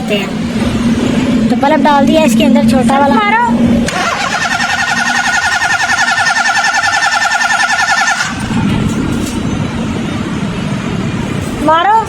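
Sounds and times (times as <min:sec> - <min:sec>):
starter motor cranking engine: 0:03.9 - 0:08.6.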